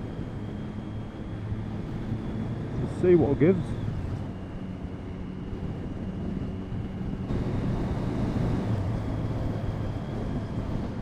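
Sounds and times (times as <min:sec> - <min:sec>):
wind noise on microphone: 0:00.0 - 0:11.0
motorcycle engine running: 0:03.9 - 0:11.0.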